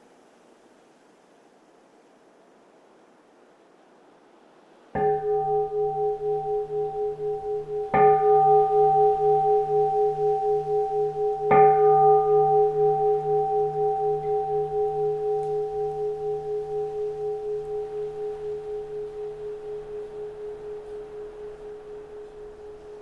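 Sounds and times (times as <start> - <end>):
bowl bell ringing: 5.0 - 23.0.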